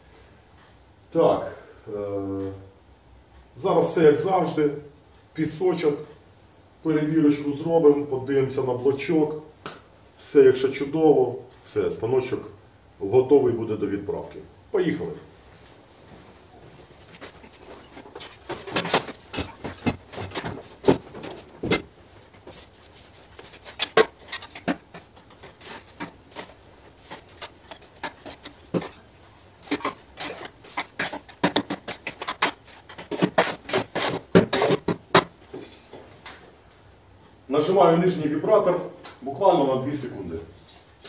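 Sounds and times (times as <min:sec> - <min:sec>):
sharp knocks: 0:29.6 - 0:35.4.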